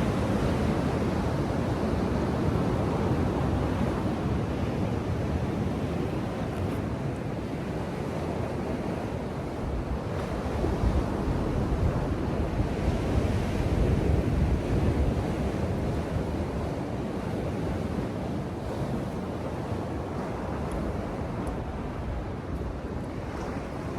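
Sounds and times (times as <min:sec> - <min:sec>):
ocean surf washing onto beach: 0:00.0 - 0:23.9
wind rumbling on microphone: 0:00.0 - 0:23.9.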